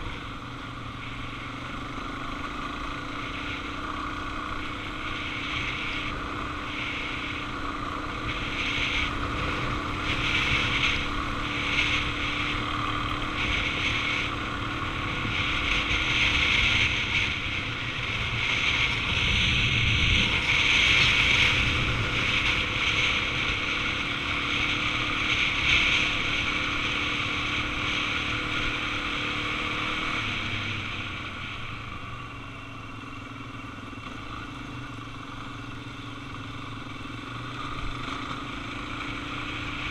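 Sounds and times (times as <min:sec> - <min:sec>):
dirt bike engine running: 0:00.0 - 0:39.9
wind rushing over microphone: 0:05.2 - 0:32.2.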